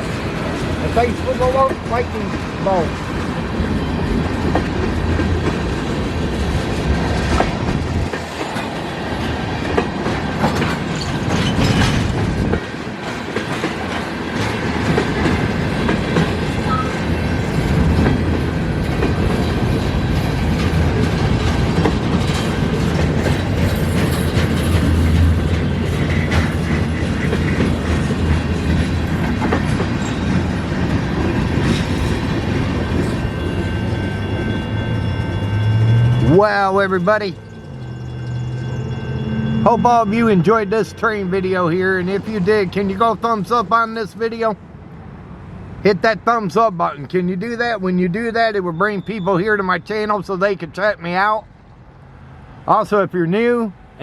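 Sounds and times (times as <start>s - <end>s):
wheels clacking over rail joints: 0.0s - 35.8s
freight train rumbling past: 0.0s - 54.0s.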